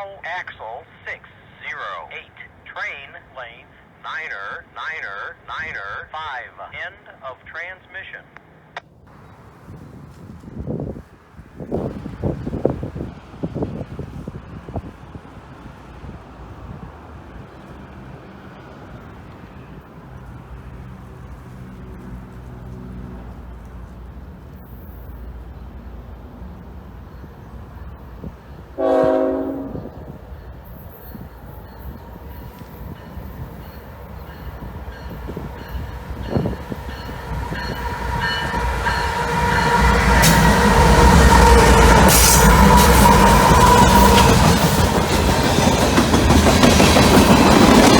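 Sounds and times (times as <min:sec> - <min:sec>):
wind buffeting microphone: 0:09.1 - 0:18.0, 0:29.5 - 0:47.9
freight train rumbling: 0:09.1 - 0:47.9
train horn blast: 0:28.8 - 0:30.2, 0:37.4 - 0:44.6.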